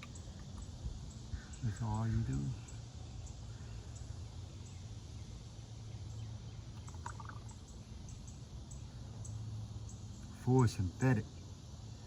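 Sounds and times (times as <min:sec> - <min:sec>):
faint ticks: 0:06.7 - 0:09.4.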